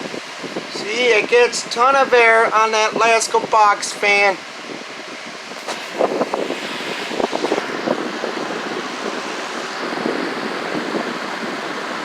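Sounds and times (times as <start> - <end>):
air buffeting microphone: 0.0 - 12.0
box fan running: 0.0 - 12.0.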